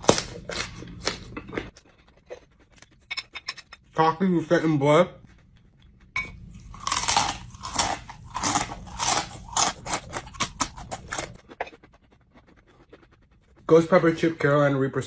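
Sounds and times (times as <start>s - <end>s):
person crunching and chewing: 0.0s - 3.1s, 6.3s - 13.6s.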